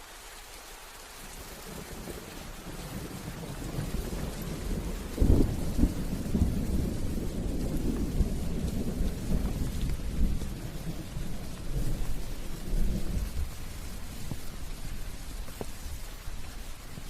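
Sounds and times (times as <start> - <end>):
steady rain: 0.0 - 17.0
thunder crack and rumble: 1.6 - 17.0.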